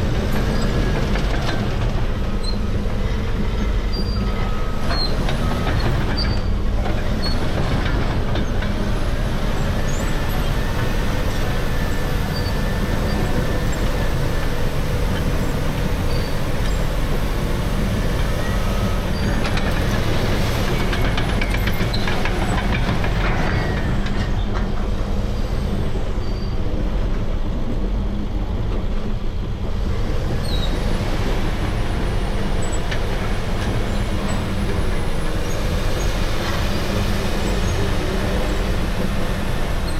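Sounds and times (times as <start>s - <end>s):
heavy bulldozer machine noise: 0.0s - 39.9s.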